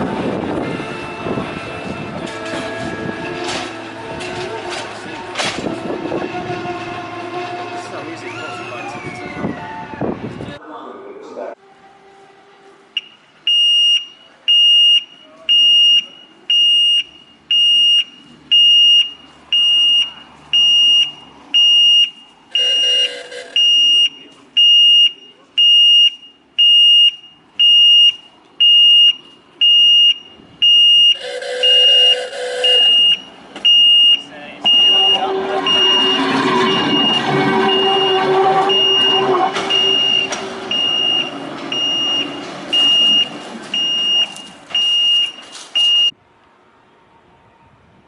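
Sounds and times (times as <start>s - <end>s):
electronic warning beeper: 13.0s - 46.1s
rough low-toned sound: 34.6s - 41.7s.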